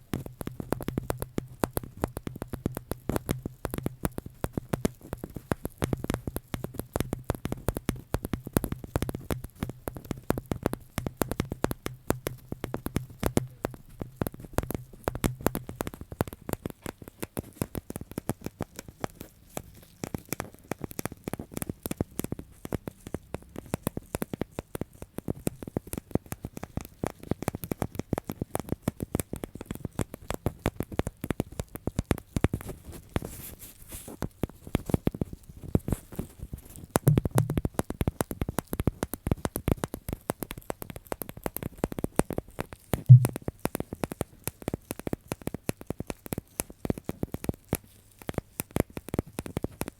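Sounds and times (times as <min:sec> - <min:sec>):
objects crackling and tapping: 0:00.0 - 0:49.9
low steady hum: 0:37.1 - 0:37.6, 0:43.0 - 0:43.5.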